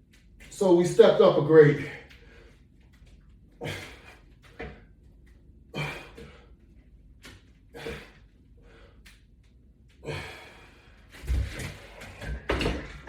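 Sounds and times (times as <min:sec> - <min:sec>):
man breathing hard: 0:03.5 - 0:05.0, 0:05.7 - 0:06.6, 0:07.7 - 0:09.2, 0:09.9 - 0:12.4.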